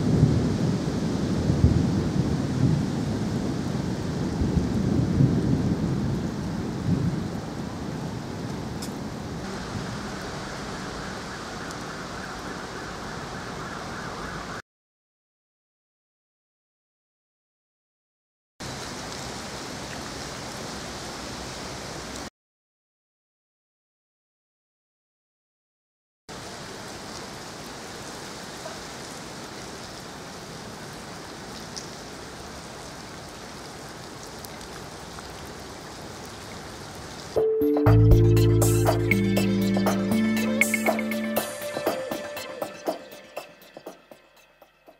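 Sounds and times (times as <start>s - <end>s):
steady rain hissing: 0.0s - 14.6s, 18.6s - 22.3s, 26.3s - 37.4s
faint raindrop ticks: 8.5s - 9.0s, 11.6s - 12.5s, 31.5s - 36.6s.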